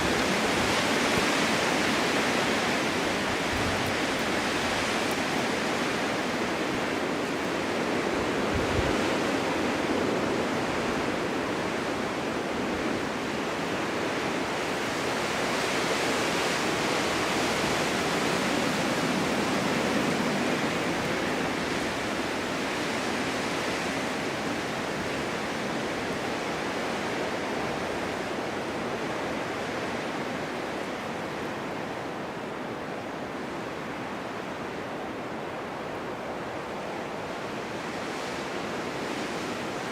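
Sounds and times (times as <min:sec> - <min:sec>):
gusting wind rushing: 0:00.0 - 0:11.6
wind buffeting microphone: 0:00.0 - 0:15.9.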